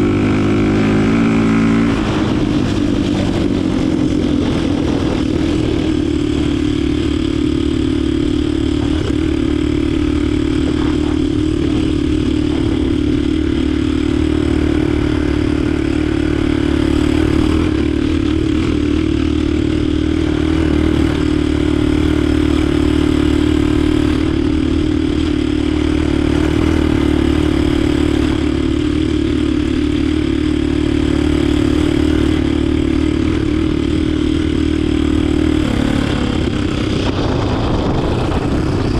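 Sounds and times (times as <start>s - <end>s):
motorcycle engine running steadily: 0.0s - 38.9s.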